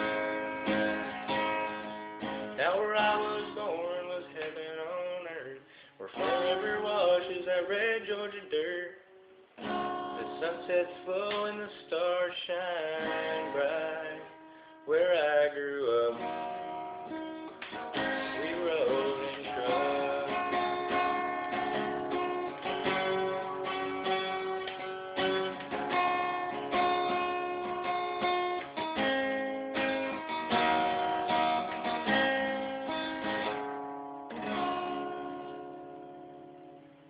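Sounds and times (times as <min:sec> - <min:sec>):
guitar strumming chords: 0:00.0 - 0:37.0.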